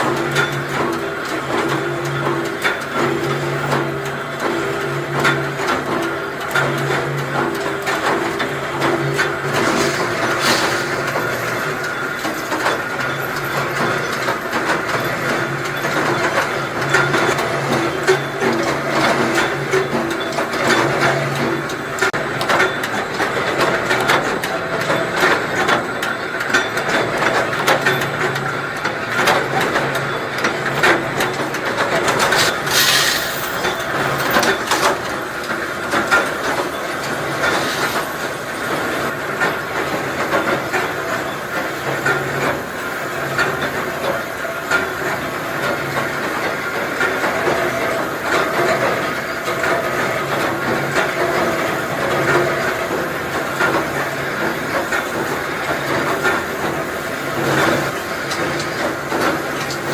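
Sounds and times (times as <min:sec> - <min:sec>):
machinery clatter of small clicks: 0:00.0 - 0:59.9
steady machine hum: 0:00.0 - 0:59.9.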